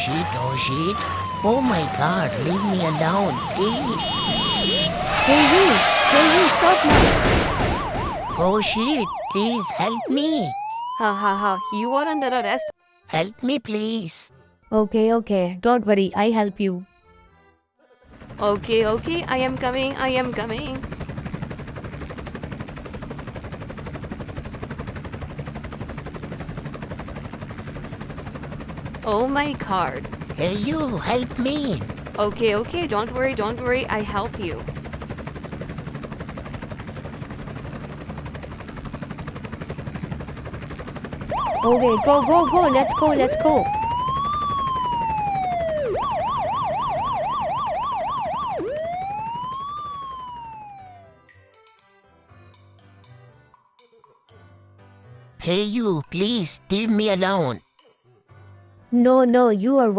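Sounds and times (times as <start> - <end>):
police siren wailing and yelping: 0.0 - 12.7, 29.3 - 34.6, 41.3 - 51.2.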